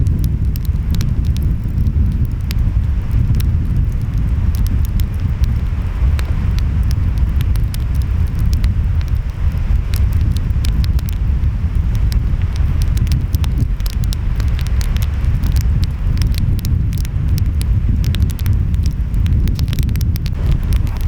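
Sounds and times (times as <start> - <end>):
wind: 0.0 - 21.0
wood fire crackling: 0.0 - 21.0
ocean waves rumbling: 19.1 - 21.0.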